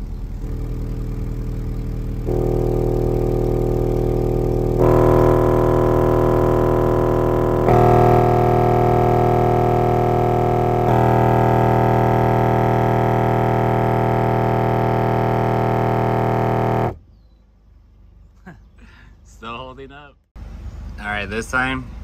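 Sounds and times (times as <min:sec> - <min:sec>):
subwoofer test tone drone: 0:00.0 - 0:17.0.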